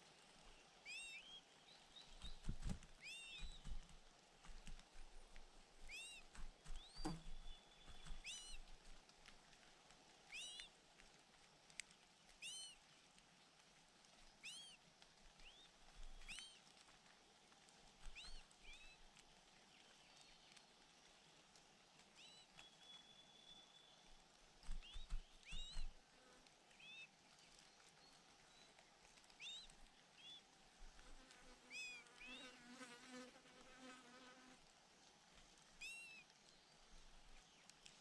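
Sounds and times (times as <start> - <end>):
small bird chirping: 0.9 - 4.8, 5.8 - 9.0, 10.3 - 10.7, 14.4 - 14.8, 15.4 - 16.6, 18.0 - 19.0, 24.6 - 26.0
faint clicks: 2.1 - 23.1, 34.7 - 38.0.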